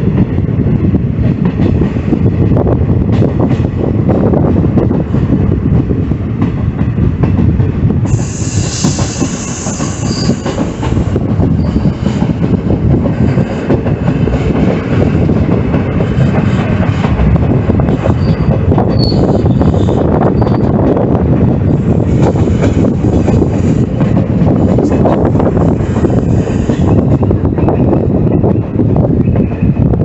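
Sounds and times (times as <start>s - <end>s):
train rumble and wheel clatter: 0.0s - 30.0s
wheels squealing on rails: 8.1s - 12.2s, 18.0s - 20.8s, 25.6s - 30.0s.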